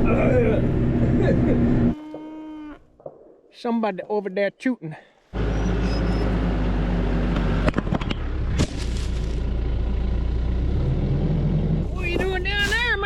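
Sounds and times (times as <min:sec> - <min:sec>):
engine humming steadily: 0:00.0 - 0:02.0, 0:05.4 - 0:13.0.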